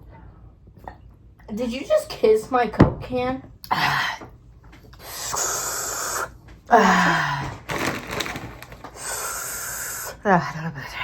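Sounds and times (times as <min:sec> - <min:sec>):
person gasping and wheezing: 0:05.0 - 0:07.6.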